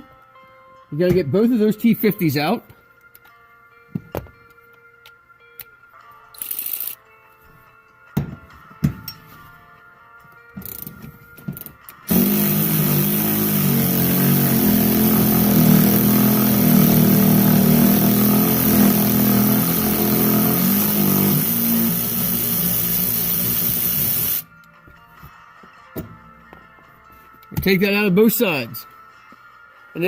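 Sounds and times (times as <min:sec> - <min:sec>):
cordless power tool motor running: 0:12.1 - 0:24.4.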